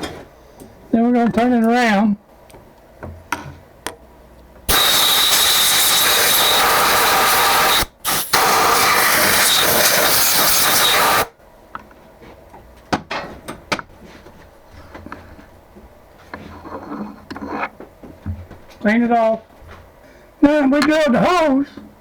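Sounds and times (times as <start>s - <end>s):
compressed air blow gun hissing: 4.7s - 11.3s.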